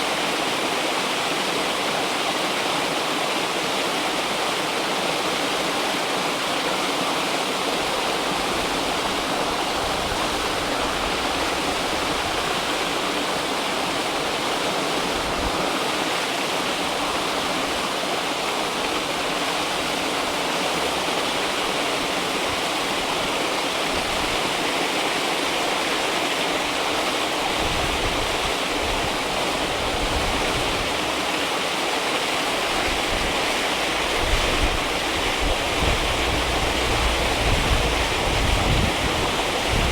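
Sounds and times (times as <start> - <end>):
river water rushing and splashing: 0.0 - 39.9
wind buffeting microphone: 32.5 - 39.9.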